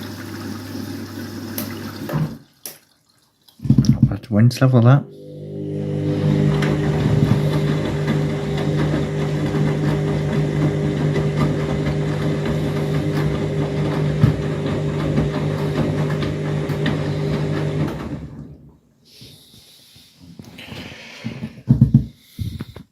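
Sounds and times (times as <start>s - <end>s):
washing machine running: 0.0s - 2.6s, 5.0s - 18.7s.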